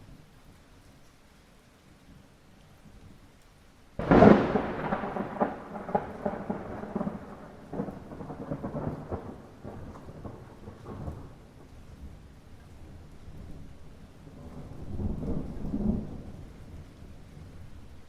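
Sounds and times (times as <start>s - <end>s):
rain: 0.0s - 18.0s
thunder rumbling and crackling: 4.0s - 18.0s.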